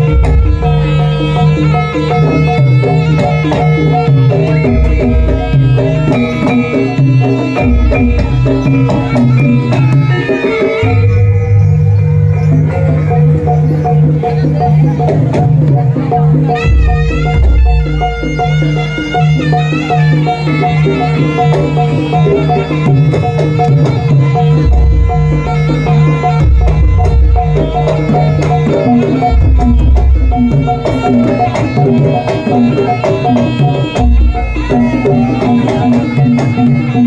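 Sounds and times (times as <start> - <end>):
wavering high melody: 0.0 - 37.0
repeating struck tone: 21.6 - 32.1.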